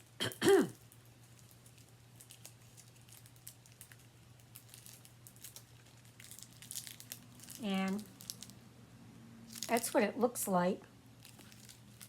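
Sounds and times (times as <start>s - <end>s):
low steady hum: 0.0s - 12.0s
wrapper rustling and clicking: 0.7s - 8.6s, 9.5s - 10.0s, 11.2s - 12.0s.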